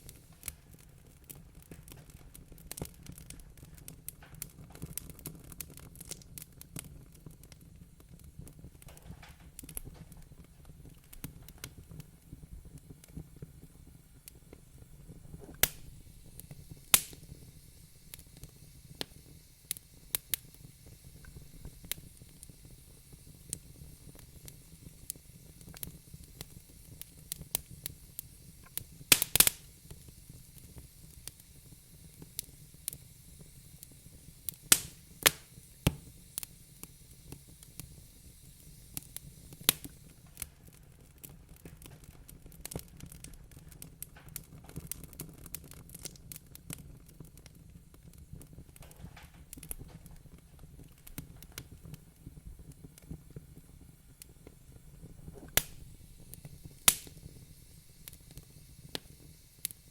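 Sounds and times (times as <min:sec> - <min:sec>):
low rumble of flames: 0:00.0 - 0:59.9
wood fire crackling: 0:00.0 - 0:59.9.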